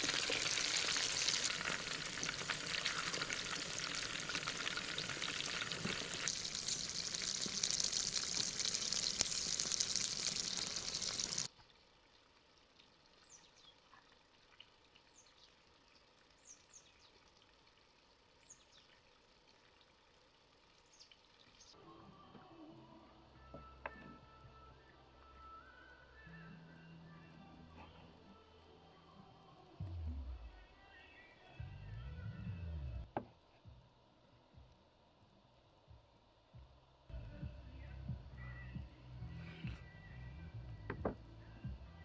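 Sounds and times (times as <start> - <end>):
food sizzling in a pan: 0.0 - 11.5.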